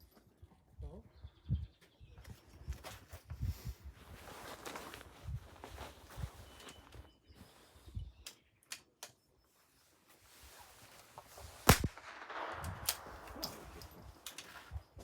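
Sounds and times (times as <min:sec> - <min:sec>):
rifle shot: 0:11.6 - 0:15.0.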